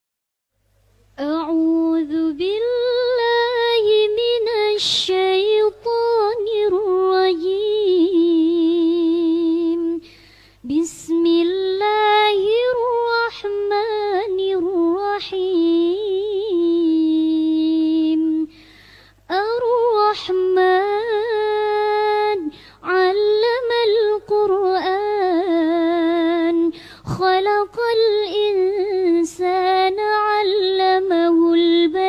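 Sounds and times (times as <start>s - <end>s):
quick breath: 10.0s - 10.6s, 18.5s - 19.3s, 22.5s - 22.8s, 26.8s - 27.0s.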